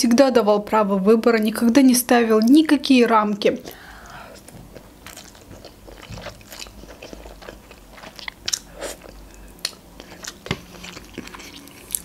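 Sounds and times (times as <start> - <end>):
person chewing noodles: 3.7 - 12.0.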